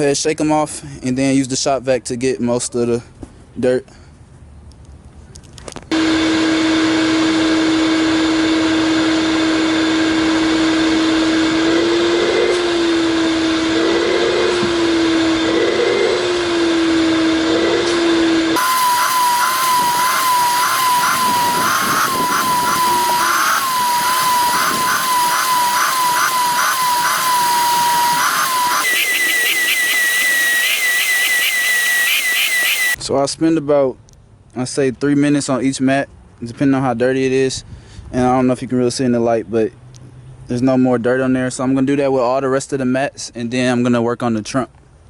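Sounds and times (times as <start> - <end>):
shop vac motor whine: 5.9 - 33.0.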